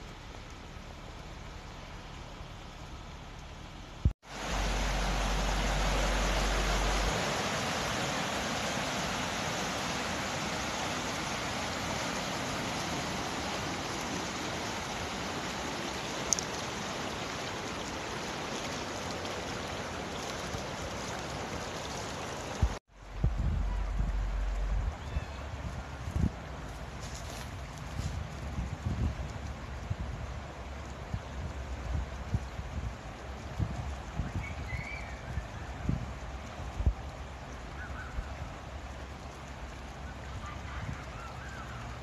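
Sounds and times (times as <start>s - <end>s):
low rumble: 0.0s - 7.2s, 22.9s - 26.9s
creek water rushing: 0.0s - 42.0s.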